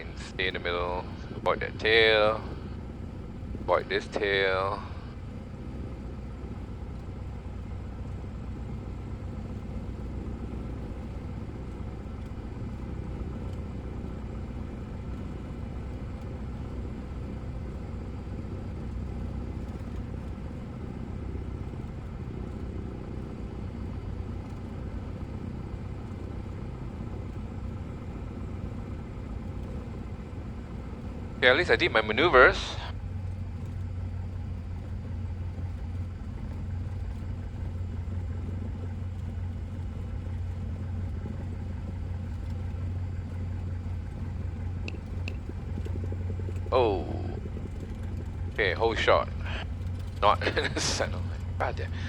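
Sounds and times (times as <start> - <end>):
aircraft engine droning: 0.0 - 52.0.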